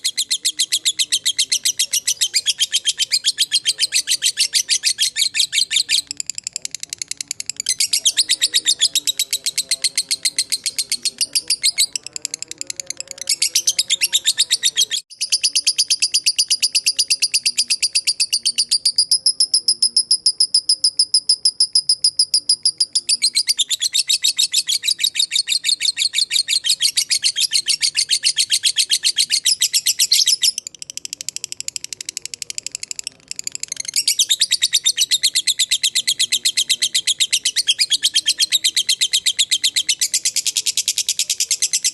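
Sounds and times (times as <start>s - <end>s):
lovebird shrill chirping chatter: 0.0s - 12.0s.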